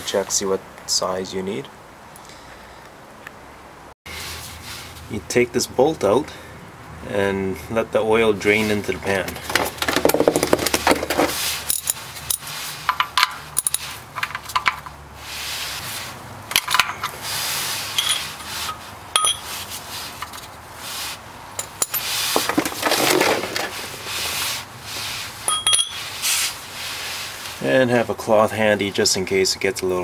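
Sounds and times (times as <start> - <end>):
socket wrench clinking on metal: 16.5 - 17.2, 17.9 - 19.6, 25.5 - 26.0
soft rustling: 22.0 - 28.0.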